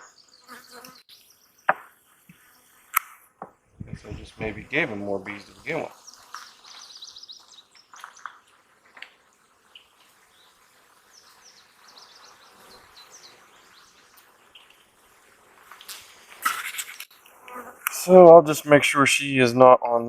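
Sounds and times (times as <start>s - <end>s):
birds chirping: 0.0s - 17.3s
honeybees buzzing: 3.9s - 18.2s.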